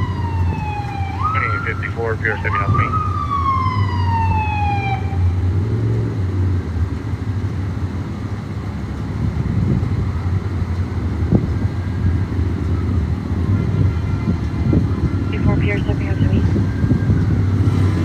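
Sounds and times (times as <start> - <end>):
siren winding down: 0.0 - 5.5
street traffic: 0.0 - 18.0
vehicle engine rumble: 0.0 - 18.0.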